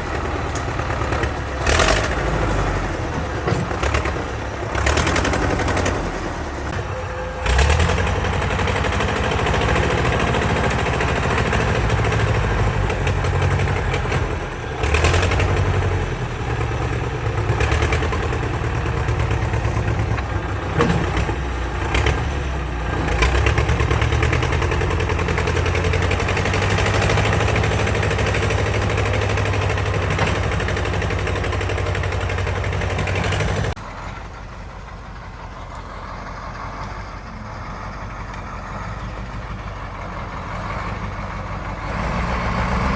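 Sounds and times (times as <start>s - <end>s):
vehicle engine driving: 0.0s - 42.9s.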